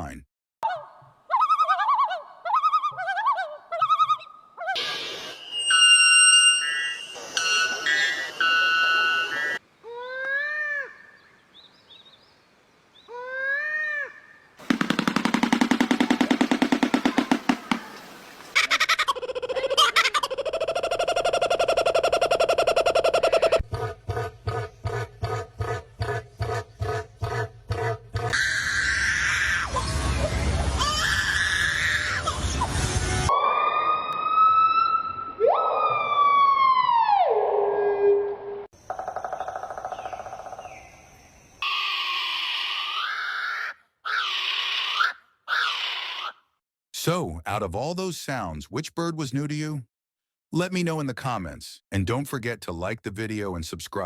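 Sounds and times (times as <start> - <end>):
siren-like bird wail: 4.7 - 9.6, 21.3 - 23.6, 28.4 - 40.3, 41.6 - 46.4
bird call rising and falling: 14.6 - 19.4, 28.4 - 41.0
pulsed bird call: 14.6 - 19.5.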